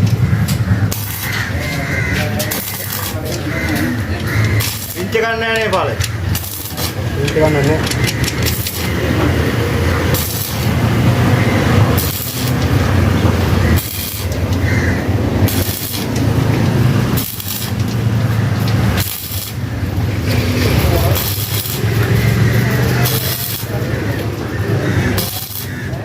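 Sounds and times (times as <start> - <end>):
engine humming: 0.0 - 26.0
sharp hissing bursts: 2.4 - 3.3, 8.2 - 24.2, 25.0 - 25.9.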